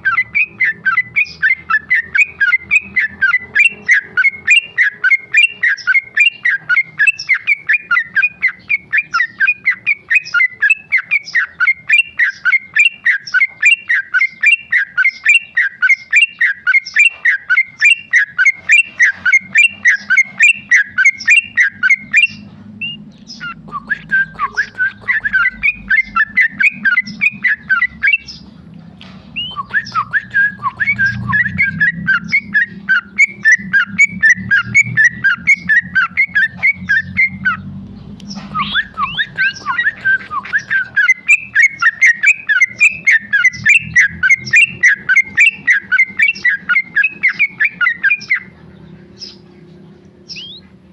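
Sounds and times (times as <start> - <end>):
bulbul chattering song: 0.0 - 50.9.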